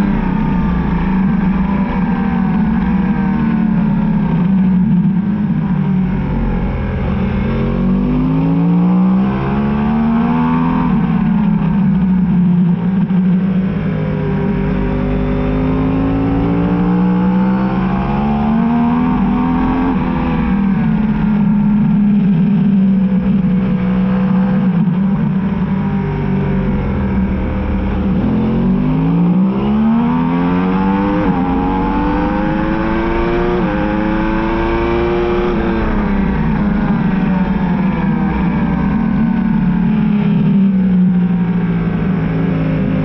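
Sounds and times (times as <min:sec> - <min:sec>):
motorcycle engine revving hard: 0:00.0 - 0:43.0
wind rush: 0:17.6 - 0:41.1.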